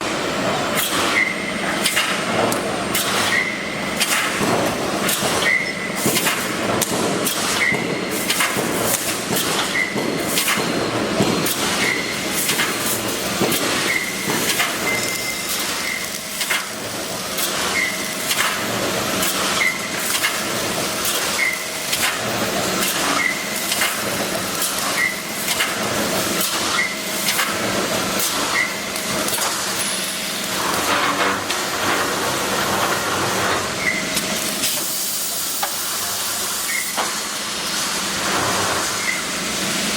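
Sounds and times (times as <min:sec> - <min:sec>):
welding machine clanking: 0:00.0 - 0:39.9.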